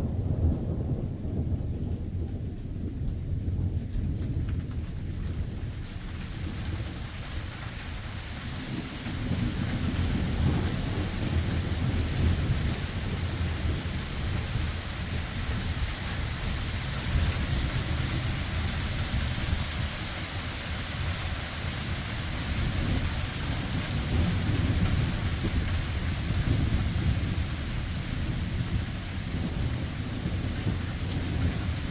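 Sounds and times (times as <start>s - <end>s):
rumbling thunder: 0.0s - 31.9s
steady rain: 0.0s - 31.9s.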